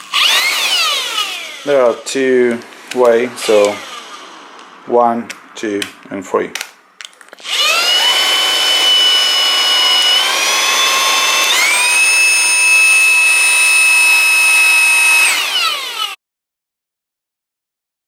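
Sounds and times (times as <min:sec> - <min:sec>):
vacuum motor whining: 0:00.0 - 0:02.0, 0:03.2 - 0:04.7, 0:07.4 - 0:16.2.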